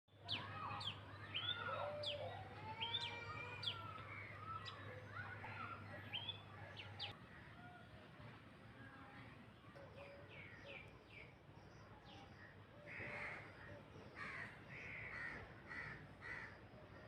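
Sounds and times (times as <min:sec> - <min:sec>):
small birds chirping: 0:00.1 - 0:07.2.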